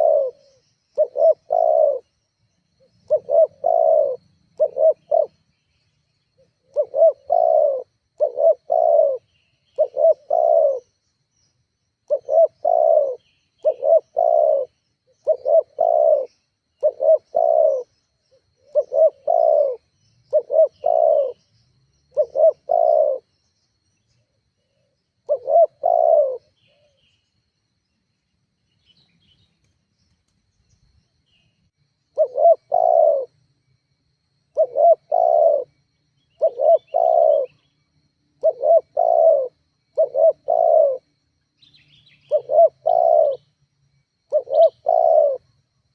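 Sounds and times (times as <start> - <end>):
dove cooing: 0.0 - 2.1, 2.8 - 5.6, 6.4 - 11.0, 12.0 - 21.4, 22.1 - 23.3, 24.6 - 27.0, 32.1 - 33.4, 34.5 - 37.7, 38.4 - 41.1, 42.0 - 43.5, 44.3 - 45.5.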